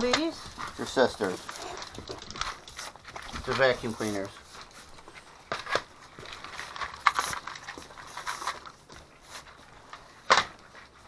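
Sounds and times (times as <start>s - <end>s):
dogs eating kibble from bowls: 0.0s - 11.0s.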